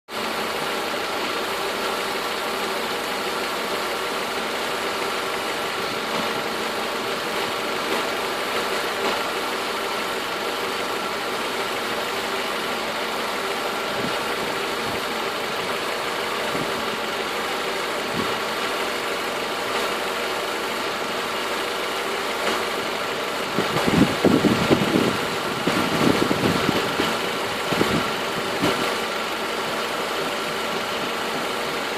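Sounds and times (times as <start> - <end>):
car engine idling: 0.1 - 31.9
low bumps and rumbles: 23.5 - 29.0.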